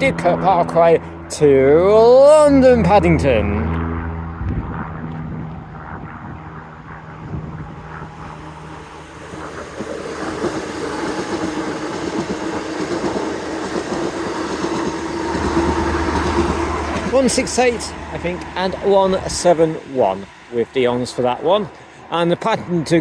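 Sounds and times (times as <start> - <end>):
steady humming tone: 0.0 - 22.9
train rail noise: 7.7 - 23.0.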